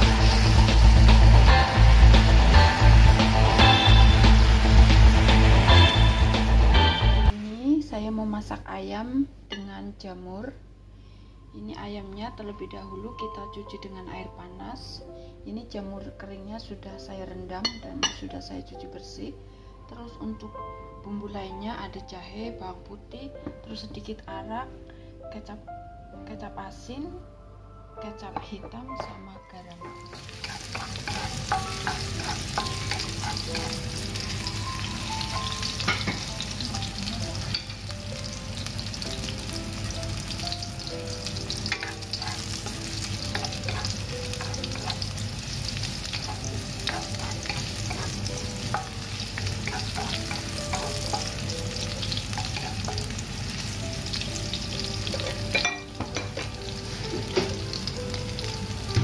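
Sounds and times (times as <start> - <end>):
ginger and garlic sizzling in oil: 0.0 - 8.6, 29.5 - 59.0
spatula scraping wok: 30.0 - 34.5, 41.4 - 55.6.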